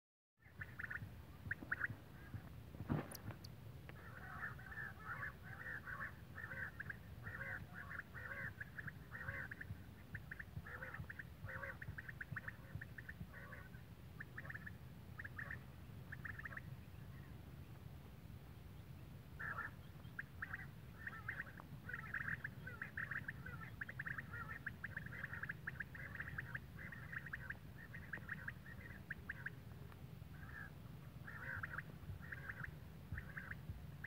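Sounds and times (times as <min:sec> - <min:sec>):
bird chattering calls: 0:00.6 - 0:03.4.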